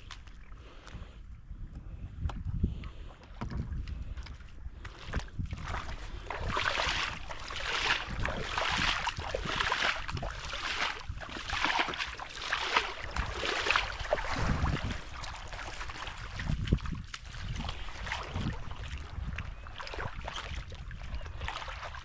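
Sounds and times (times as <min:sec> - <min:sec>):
wind rumbling on microphone: 0:00.0 - 0:22.0
footsteps on sand: 0:04.8 - 0:18.7.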